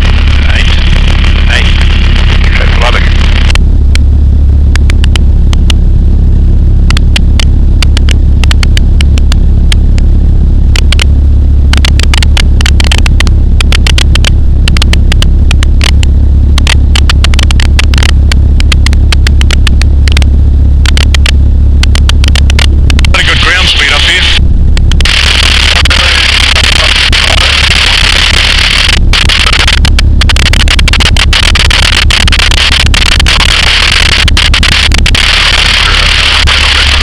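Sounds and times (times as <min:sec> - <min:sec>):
microlight engine and propeller droning: 0:00.0 - 0:37.0
short sharp crackling clicks: 0:11.7 - 0:37.0.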